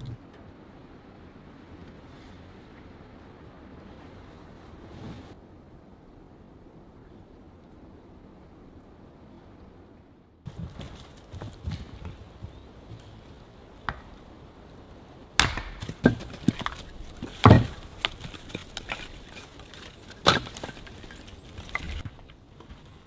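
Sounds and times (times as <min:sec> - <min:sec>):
axe strikes on firewood: 0:15.4 - 0:21.1
wood splintering crackle: 0:15.4 - 0:22.8.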